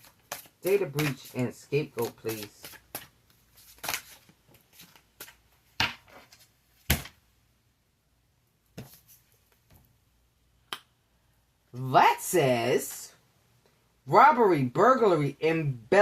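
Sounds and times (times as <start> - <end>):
cards tapping and snapping: 0.0 - 1.4, 2.0 - 5.4.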